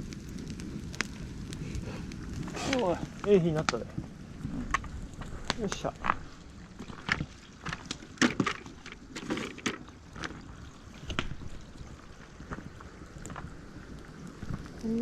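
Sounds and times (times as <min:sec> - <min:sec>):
firewood knocking: 0:02.4 - 0:10.4.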